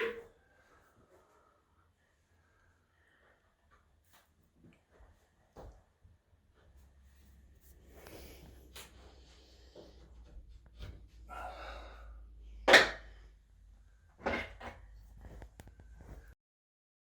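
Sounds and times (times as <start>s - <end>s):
wooden panels knocking and scraping: 14.2s - 15.7s.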